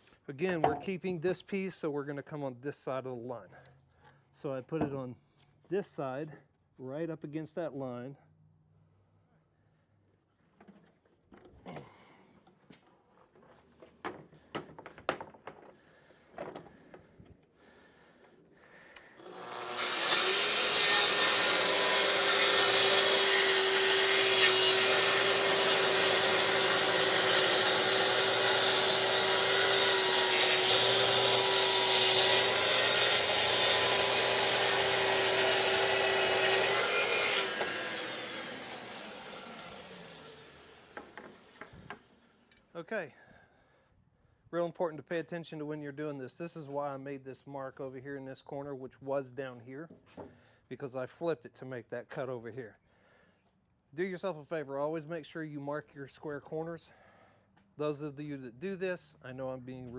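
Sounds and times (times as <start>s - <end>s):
circular saw cutting wood: 18.9s - 42.4s.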